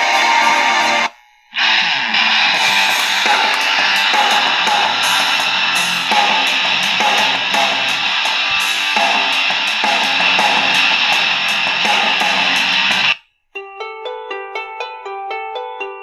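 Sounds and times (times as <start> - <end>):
rock music from small radio speaker: 0.0 - 13.2.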